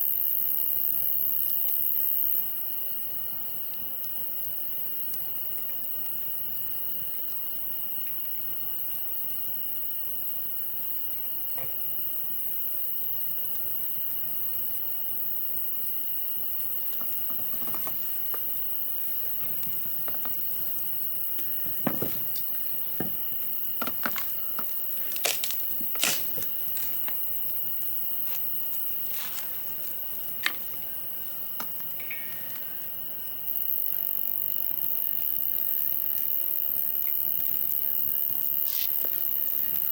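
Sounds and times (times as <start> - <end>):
campfire hissing and crackling: 0.0 - 39.9
high insect trill: 0.0 - 39.9.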